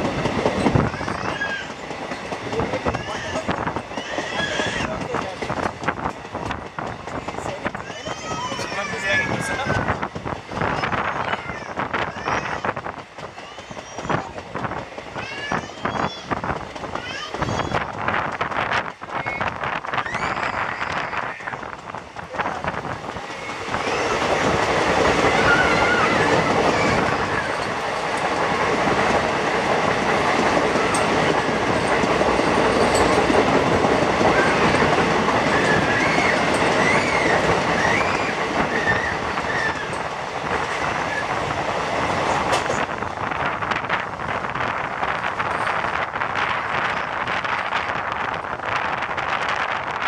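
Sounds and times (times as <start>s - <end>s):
train wheel clatter on rails: 0.0s - 50.0s
wavering wheel squeal: 35.4s - 40.0s.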